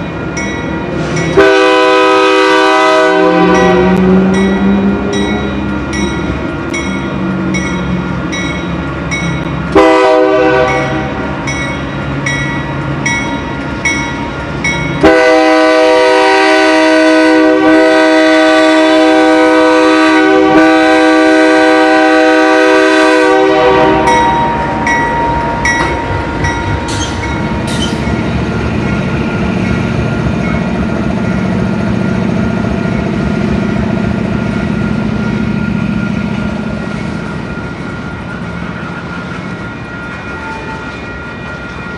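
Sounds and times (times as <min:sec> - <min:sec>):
train rumble: 0:00.0 - 0:41.9
locomotive air horn blasts: 0:01.4 - 0:04.0, 0:09.8 - 0:11.2, 0:15.0 - 0:24.6.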